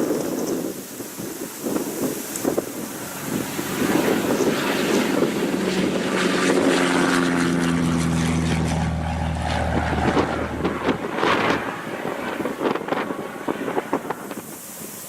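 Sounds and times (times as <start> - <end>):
light aircraft engine droning: 0.0 - 15.0
wind rumble on microphone: 0.0 - 15.0.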